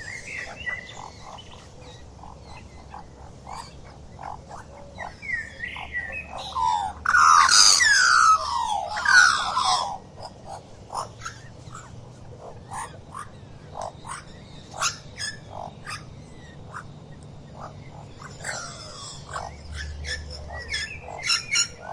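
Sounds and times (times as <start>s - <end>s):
harsh downward sweeping animal calls: 2.9s - 10.0s.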